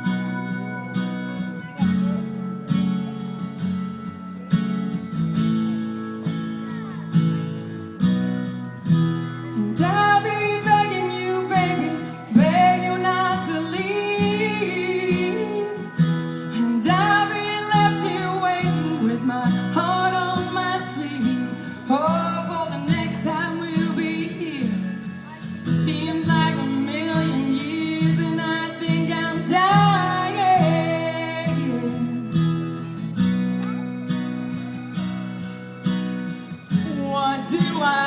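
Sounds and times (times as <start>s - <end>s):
strummed acoustic guitar: 0.0s - 38.0s
woman singing: 9.4s - 33.1s, 36.7s - 38.0s.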